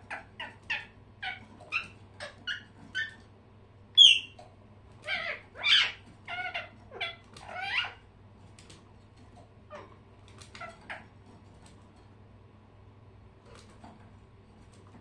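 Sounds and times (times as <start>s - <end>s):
pet birds calling: 0.0s - 3.2s, 3.9s - 8.1s, 9.7s - 11.2s.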